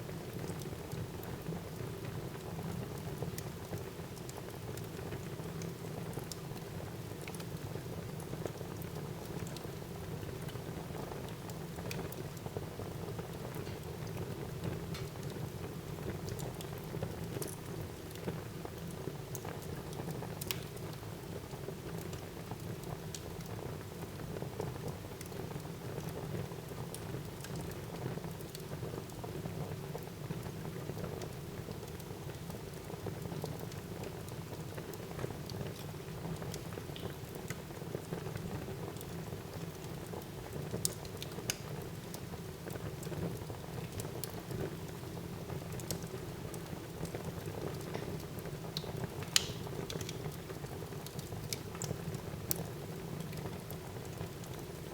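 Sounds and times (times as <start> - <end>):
fire crackling and popping: 13.2 - 23.6, 29.9 - 54.9.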